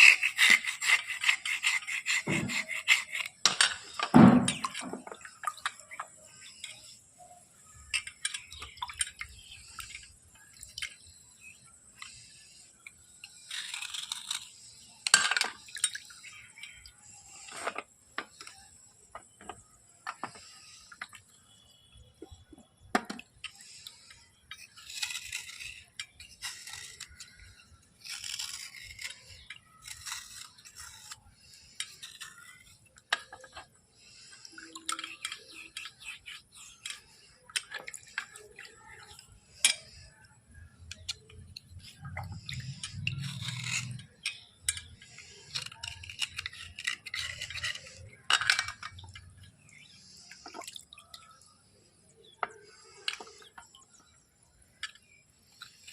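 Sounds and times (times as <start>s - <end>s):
tool scraping wet bars: 0.0s - 7.0s, 23.4s - 40.2s, 40.8s - 50.6s
water drips: 8.2s - 11.1s, 48.9s - 51.5s.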